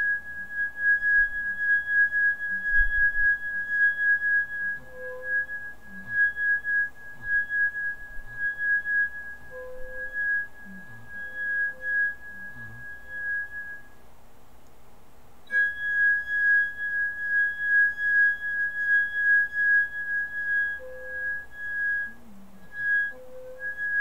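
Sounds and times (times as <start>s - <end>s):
low electronic tone: 0.0s - 13.9s.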